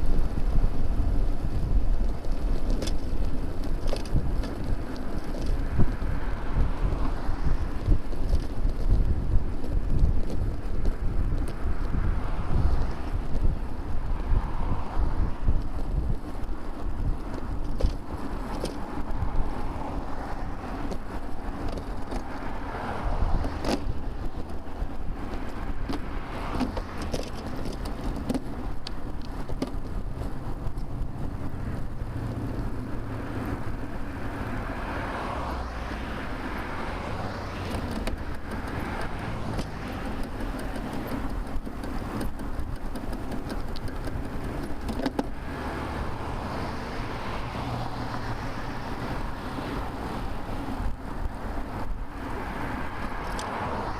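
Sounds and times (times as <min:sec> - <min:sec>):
cars passing: 0:00.0 - 0:53.9
traffic rumble: 0:00.0 - 0:53.9
small clicks and knocks: 0:02.0 - 0:06.0, 0:17.2 - 0:19.1, 0:20.8 - 0:22.6, 0:23.4 - 0:24.6, 0:25.3 - 0:31.1, 0:37.6 - 0:45.4, 0:53.0 - 0:53.6.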